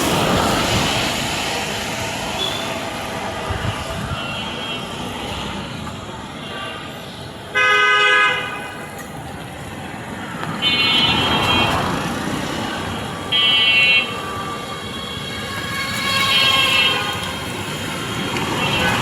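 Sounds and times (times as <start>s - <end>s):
traffic noise: 0.0s - 19.0s
vehicle horns honking: 2.4s - 2.8s, 6.4s - 8.9s, 13.3s - 17.9s, 18.5s - 19.0s.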